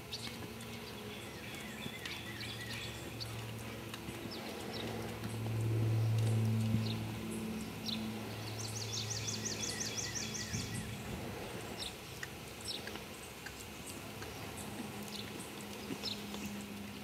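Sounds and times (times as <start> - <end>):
outdoor background noise: 0.0 - 17.0
steady low hum: 0.0 - 17.0.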